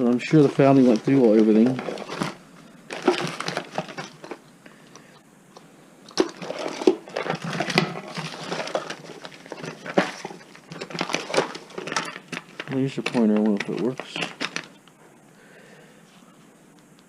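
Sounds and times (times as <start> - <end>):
rummaging through household items: 0.0 - 5.2, 6.0 - 14.8.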